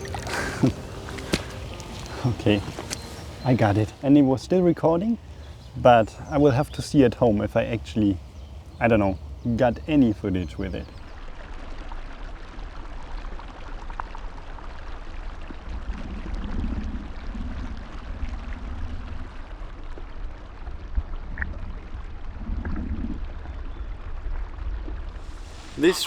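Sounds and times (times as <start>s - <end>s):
water wash: 0.0s - 10.9s, 25.2s - 26.0s
geese calling: 0.0s - 11.1s, 25.4s - 26.0s.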